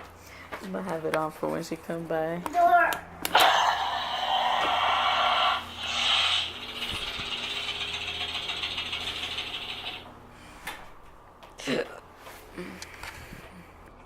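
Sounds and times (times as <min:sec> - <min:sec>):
toy motor buzzing and rattling: 0:03.3 - 0:10.1.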